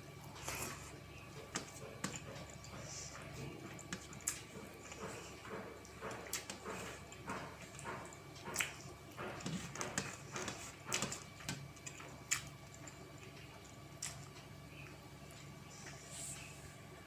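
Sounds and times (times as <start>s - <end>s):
wet mouth clicks while chewing: 9.8s - 14.3s.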